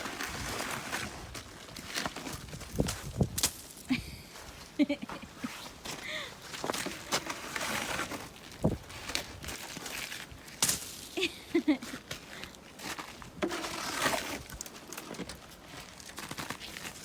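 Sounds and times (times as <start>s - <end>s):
scraping: 13.3s - 15.3s.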